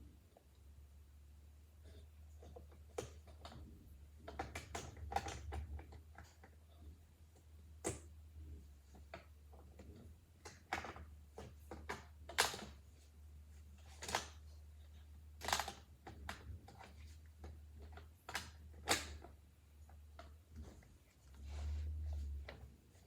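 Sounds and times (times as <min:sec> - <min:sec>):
plastic parts clicking and knocking: 0:02.3 - 0:13.1, 0:13.8 - 0:21.1.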